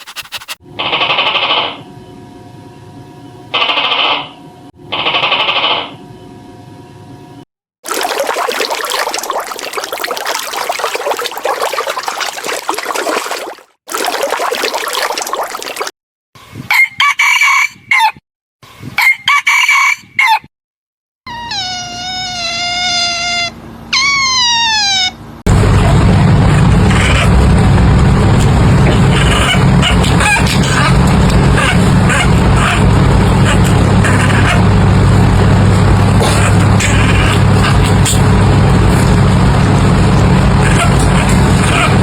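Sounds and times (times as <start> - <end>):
rooster crowing: 16.8 - 18.2, 19.0 - 20.5
chickens clucking: 28.9 - 34.7.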